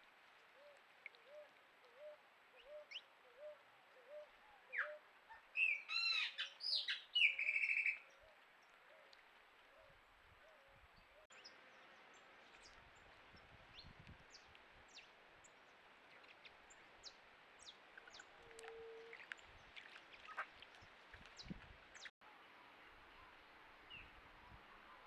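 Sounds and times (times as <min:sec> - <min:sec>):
bird chirps and calls: 0:05.6 - 0:08.0.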